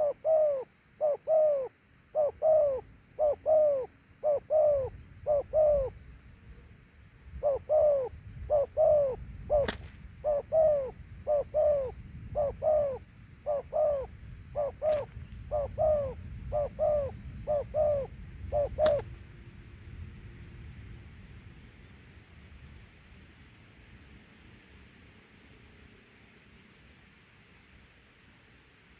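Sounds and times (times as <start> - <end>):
dove cooing: 0.0 - 6.0, 7.3 - 19.1.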